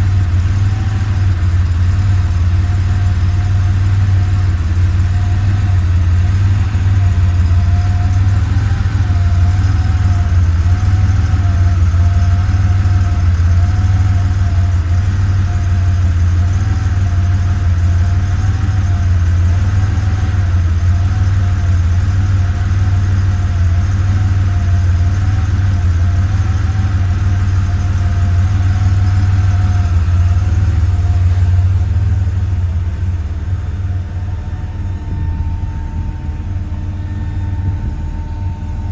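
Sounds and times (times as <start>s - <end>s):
car engine idling: 0.0s - 38.9s
faint wavering whine: 29.1s - 38.9s.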